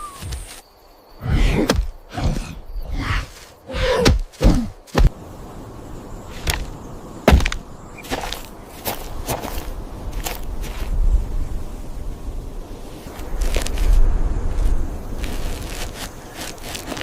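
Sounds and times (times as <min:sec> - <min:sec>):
heavy thuds and knocks: 0:07.3 - 0:07.6.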